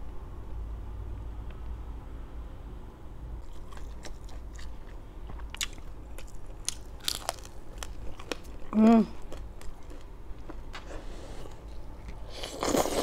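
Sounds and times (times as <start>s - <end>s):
crisp food crunching: 3.4s - 10.9s.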